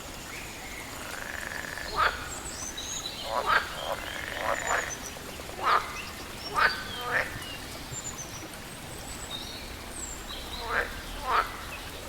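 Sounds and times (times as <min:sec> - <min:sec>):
frogs croaking: 0:00.9 - 0:07.4, 0:10.4 - 0:11.9.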